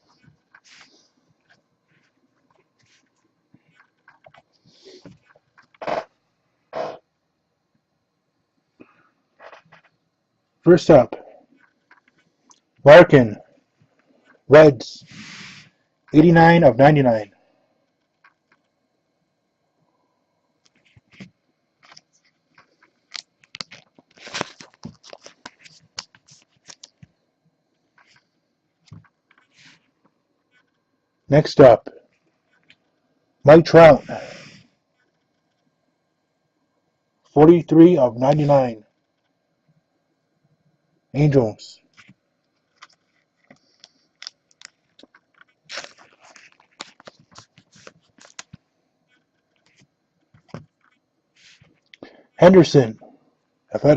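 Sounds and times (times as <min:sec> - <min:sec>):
cards rustling scrape: 0:00.6 - 0:01.1, 0:20.8 - 0:27.1, 0:28.9 - 0:29.9, 0:42.8 - 0:51.8
cards clicking and scraping: 0:20.7 - 0:27.1, 0:42.0 - 0:48.6
plastic packaging crinkling: 0:21.8 - 0:27.1, 0:42.6 - 0:48.7.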